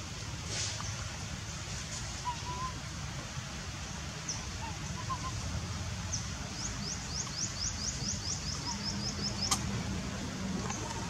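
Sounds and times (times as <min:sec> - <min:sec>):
bird chirping: 0:06.1 - 0:09.6.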